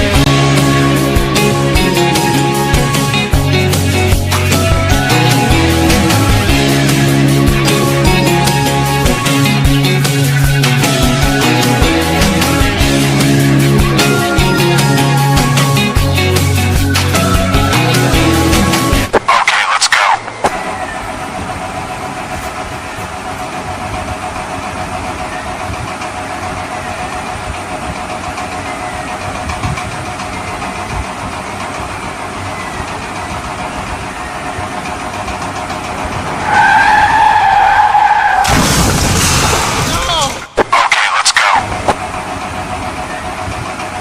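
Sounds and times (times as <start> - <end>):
car engine running: 0.0 - 44.0
loud pitched tone: 19.2 - 22.2, 40.1 - 42.2.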